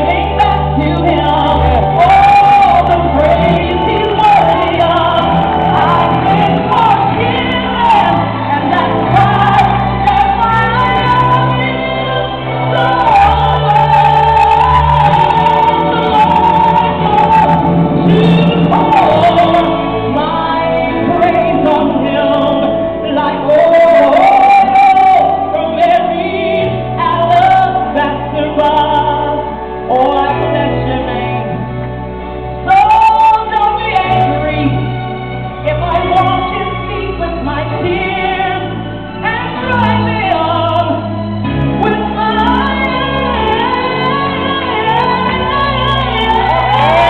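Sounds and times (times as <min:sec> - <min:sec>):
woman singing gospel: 0:00.0 - 0:31.8, 0:32.6 - 0:35.0, 0:41.7 - 0:47.0
band playing: 0:00.0 - 0:47.0
bass line: 0:00.0 - 0:47.0.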